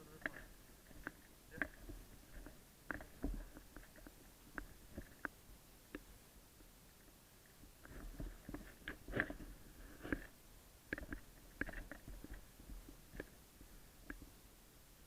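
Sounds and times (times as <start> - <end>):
soft clicks and knocks: 0.1 - 6.1, 10.9 - 14.4.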